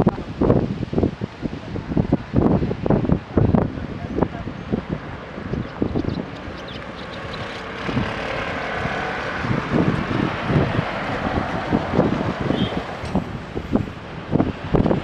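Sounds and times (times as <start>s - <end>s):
wind buffeting microphone: 0.0s - 15.0s
diesel engine running: 6.2s - 14.2s.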